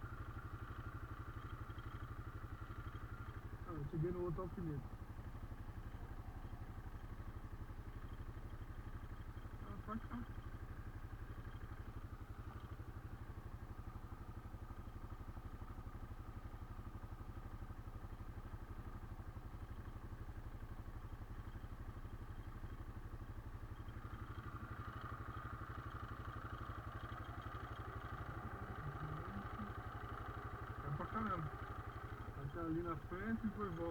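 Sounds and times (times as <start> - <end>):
quad bike engine rumbling: 0.0 - 33.9.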